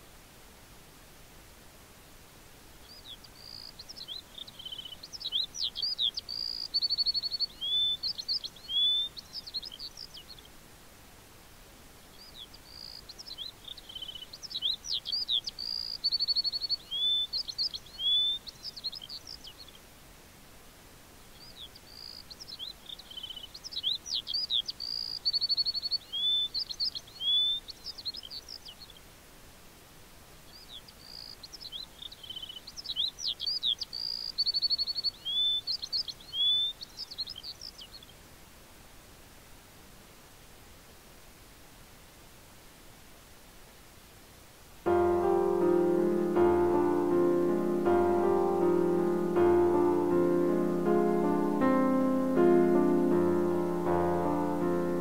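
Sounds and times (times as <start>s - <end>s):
songbird whistling: 4.0s - 9.2s, 14.6s - 18.5s, 23.8s - 26.6s, 27.2s - 27.6s, 32.2s - 36.8s.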